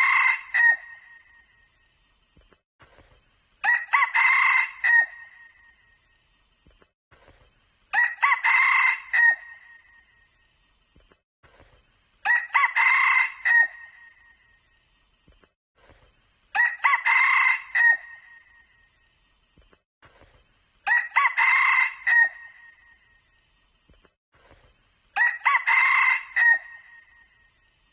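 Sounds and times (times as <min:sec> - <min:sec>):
rooster crowing: 0:00.0 - 0:01.0, 0:03.6 - 0:05.4, 0:07.9 - 0:09.6, 0:12.2 - 0:13.9, 0:16.6 - 0:18.3, 0:20.9 - 0:22.8, 0:25.2 - 0:27.1.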